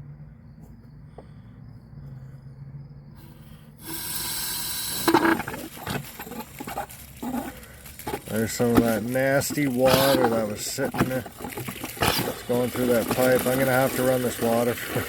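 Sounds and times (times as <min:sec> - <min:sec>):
water rushing from spigot: 0:03.9 - 0:15.0.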